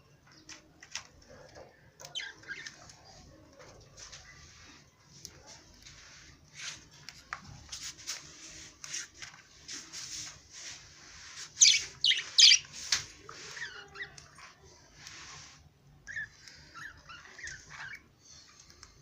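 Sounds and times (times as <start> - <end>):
parrots squawking: 11.6 - 12.7.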